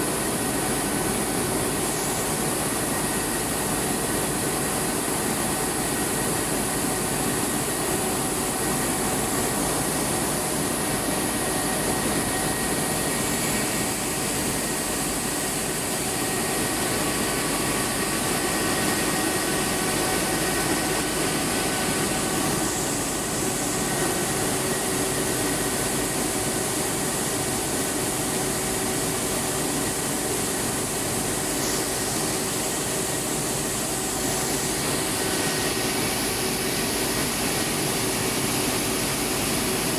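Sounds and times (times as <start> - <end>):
milling machinery running: 0.0 - 39.9.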